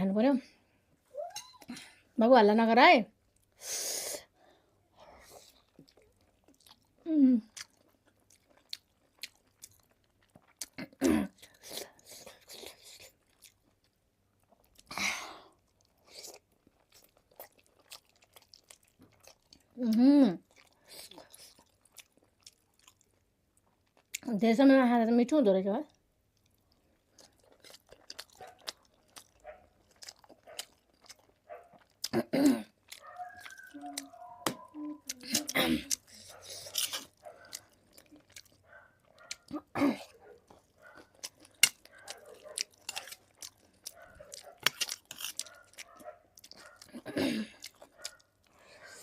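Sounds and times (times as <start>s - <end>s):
wet chewing: 5.0s - 14.9s, 15.5s - 24.3s, 25.9s - 49.0s
mouth clicks: 33.0s - 37.0s.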